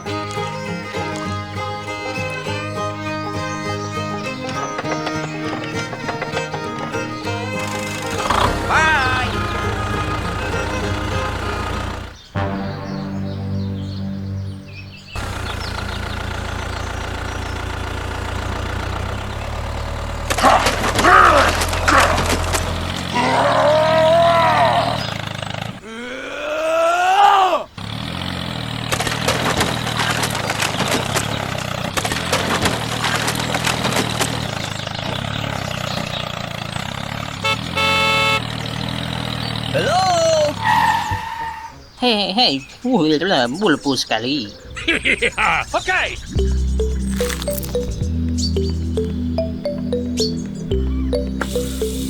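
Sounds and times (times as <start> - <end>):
loud sliding pitch call: 0.0 - 12.8, 37.4 - 38.7
tractor engine idling: 0.0 - 13.0, 13.9 - 25.8, 27.7 - 52.0
music: 0.0 - 15.2, 46.4 - 52.0
horn beeping: 0.0 - 23.2, 36.6 - 39.5, 45.6 - 52.0.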